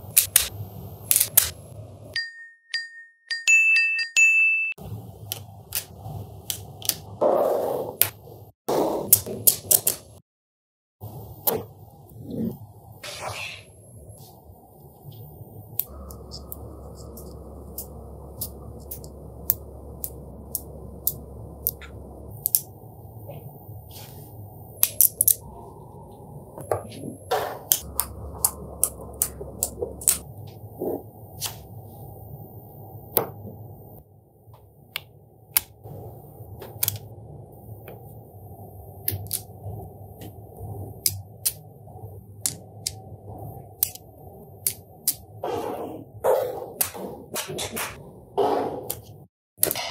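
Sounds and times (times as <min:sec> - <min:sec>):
faint steady hum: 0:11.0 - 0:47.0.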